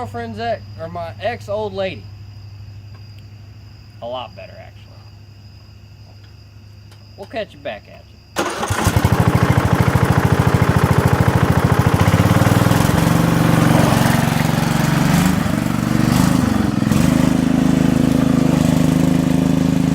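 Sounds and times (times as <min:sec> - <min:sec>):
riding lawn mower engine running: 0:08.4 - 0:19.9.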